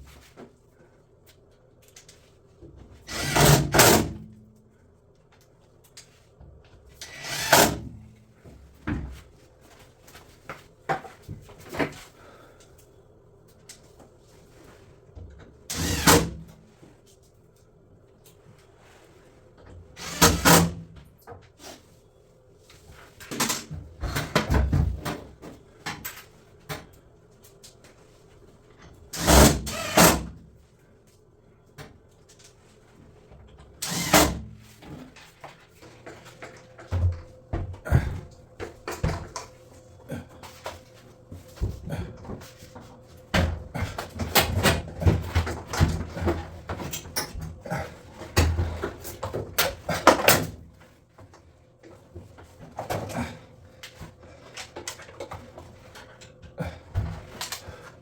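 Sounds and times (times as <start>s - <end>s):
loud bursts of mechanical noise: 3.1s - 4.1s, 15.7s - 16.4s, 20.0s - 20.8s, 29.2s - 30.3s, 33.8s - 34.4s.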